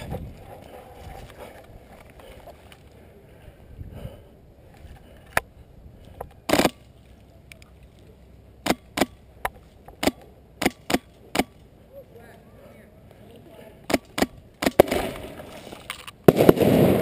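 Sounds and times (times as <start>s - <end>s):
airsoft gunshots: 13.9s - 15.4s, 16.3s - 17.0s.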